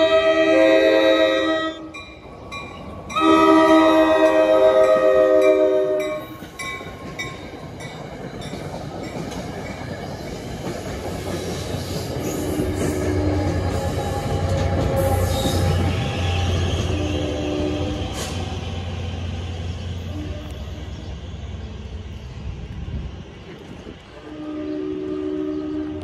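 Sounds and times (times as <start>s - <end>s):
train horn: 0.0s - 1.9s, 3.2s - 6.3s, 12.3s - 18.6s, 20.0s - 21.1s, 24.2s - 26.0s
train wheels rumbling on rails: 0.0s - 26.0s
crossing bell ringing: 1.8s - 9.9s.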